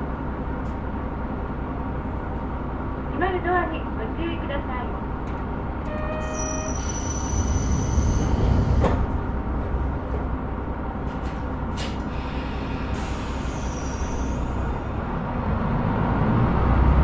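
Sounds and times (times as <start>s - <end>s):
train doors shutting with a knock: 5.3s - 9.5s
short tone: 5.9s - 7.8s.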